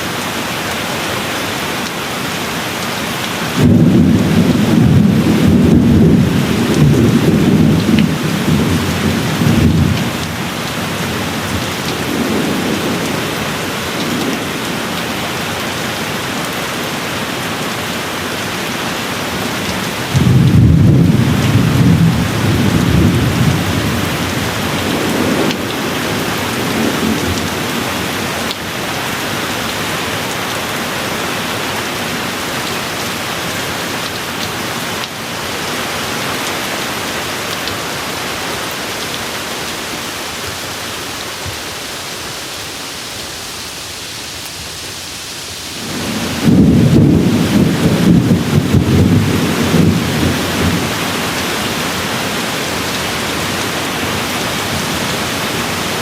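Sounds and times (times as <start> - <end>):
steady rain: 0.0 - 56.0
rolling thunder: 3.5 - 10.2, 20.1 - 27.8, 45.8 - 51.1.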